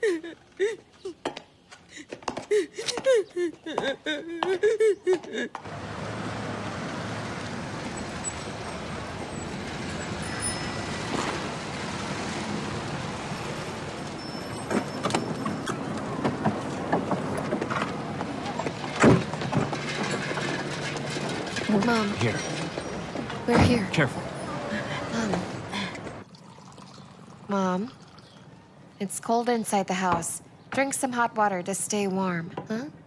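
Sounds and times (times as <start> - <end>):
road noise: 0.0 - 31.3
vehicle humming: 4.6 - 26.3.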